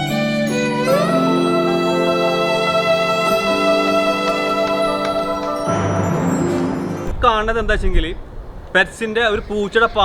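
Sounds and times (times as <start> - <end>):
instrumental background music: 0.0 - 7.4.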